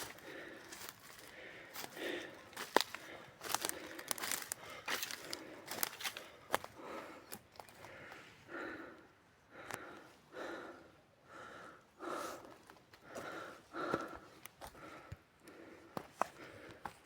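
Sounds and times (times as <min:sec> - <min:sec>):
person panting: 0:00.0 - 0:17.0
footsteps clicking: 0:00.8 - 0:06.7.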